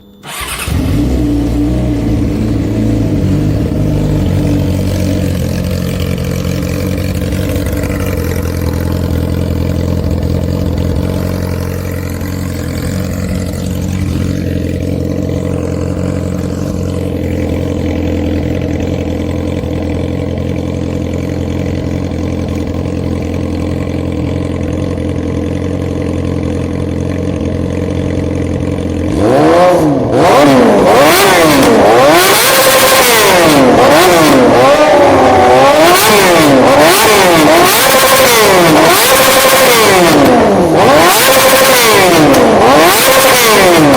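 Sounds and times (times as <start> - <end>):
motorcycle engine idling: 0.0 - 30.2.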